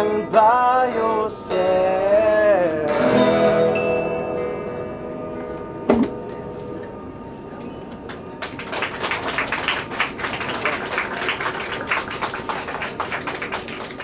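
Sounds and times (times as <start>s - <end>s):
small group clapping: 7.9s - 14.0s.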